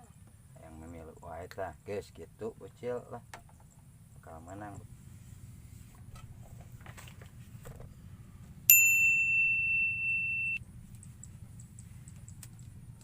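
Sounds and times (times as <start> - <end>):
bright bell-like ding: 8.7 - 10.6.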